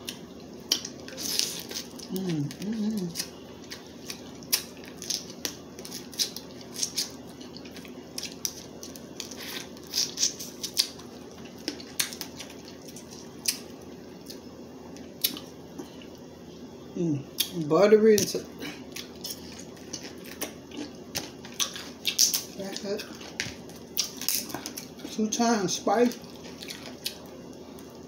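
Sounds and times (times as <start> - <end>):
low background hum: 0.0 - 28.0
crab shells cracking: 0.1 - 13.7, 19.0 - 25.0.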